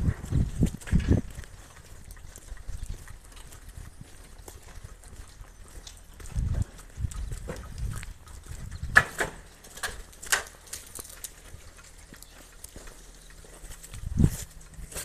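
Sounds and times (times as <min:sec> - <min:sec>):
wind buffeting microphone: 0:00.0 - 0:09.4, 0:13.8 - 0:15.0
crunching footsteps: 0:00.0 - 0:15.0.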